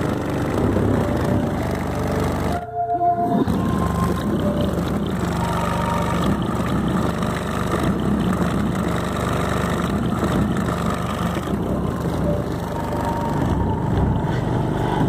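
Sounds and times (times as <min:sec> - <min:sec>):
subwoofers playing deep bass: 0:09.8 - 0:15.0.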